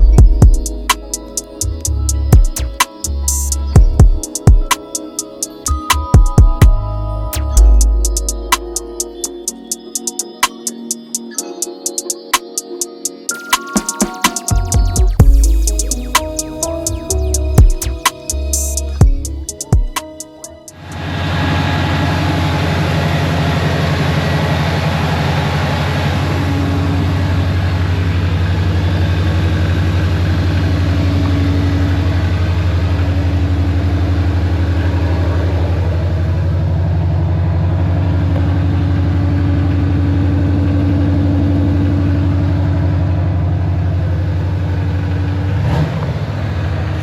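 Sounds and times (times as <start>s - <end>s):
pickup engine idling: 0.0s - 4.4s, 14.6s - 19.7s, 20.8s - 47.0s.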